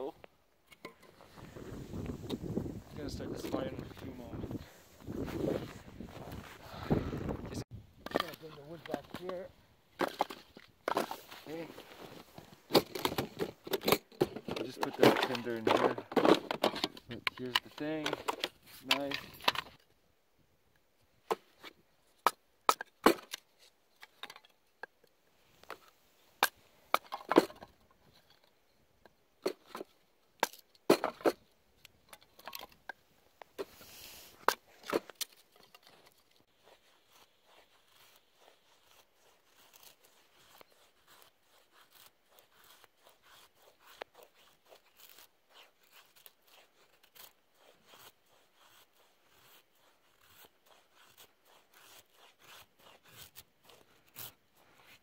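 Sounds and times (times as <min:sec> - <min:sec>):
rustling: 0:08.2 - 0:19.8, 0:32.3 - 0:55.0.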